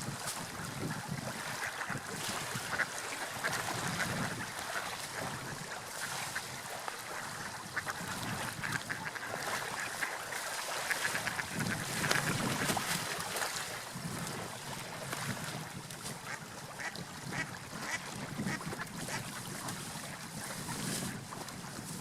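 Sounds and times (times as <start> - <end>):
sea waves: 0.0 - 22.0
wind: 0.0 - 22.0.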